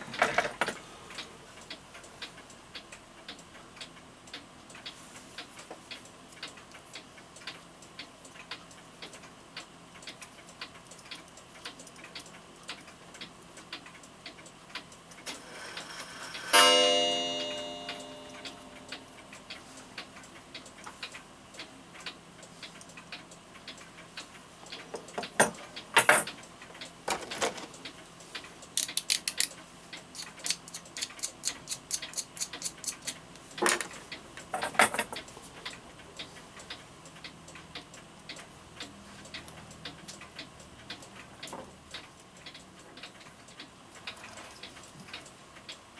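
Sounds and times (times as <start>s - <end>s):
clock ticking: 0.0s - 27.0s, 27.7s - 45.9s
clock striking: 15.2s - 19.6s.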